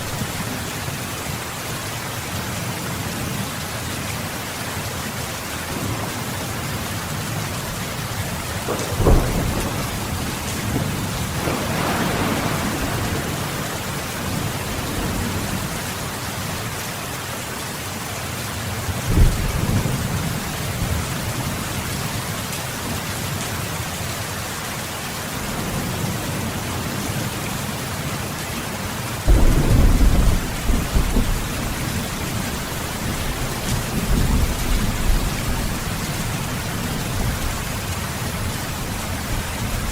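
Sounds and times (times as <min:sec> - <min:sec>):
steady rain falling: 0:00.0 - 0:39.9
thunder rumbling: 0:05.8 - 0:16.8, 0:29.3 - 0:39.9.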